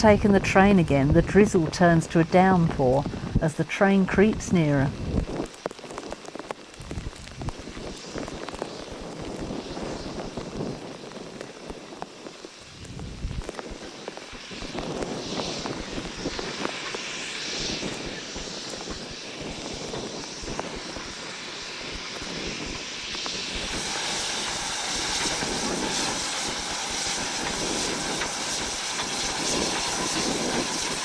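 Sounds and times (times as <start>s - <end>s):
heavy rain hissing: 3.0s - 31.0s
steam locomotive rumble: 7.3s - 31.0s.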